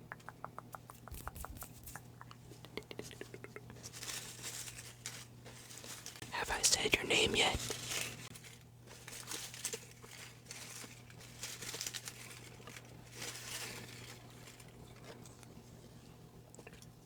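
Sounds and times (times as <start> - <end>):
paper slips rustling: 0.7 - 2.2.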